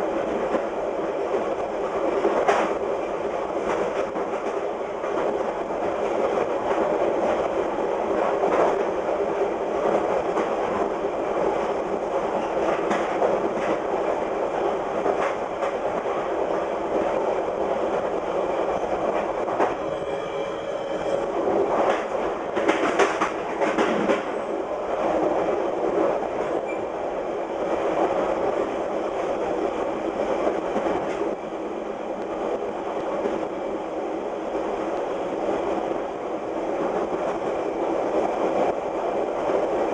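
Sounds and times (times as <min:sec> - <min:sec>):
train rolling rumble: 0:00.0 - 0:39.9
train wheels clacking over rail joints: 0:21.8 - 0:24.4.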